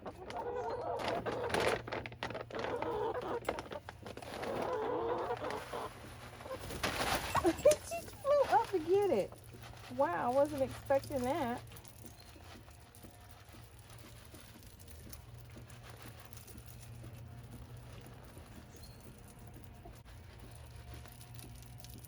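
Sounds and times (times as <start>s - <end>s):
chickens pecking and scratching: 0.0s - 22.0s
steady low hum: 1.0s - 22.0s.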